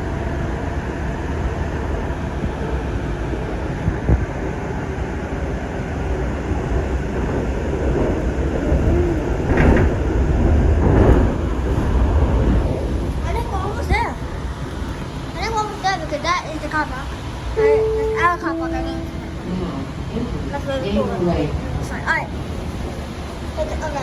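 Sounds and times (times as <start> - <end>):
light rail train rumbling: 0.0 - 24.0
train clattering: 7.2 - 24.0.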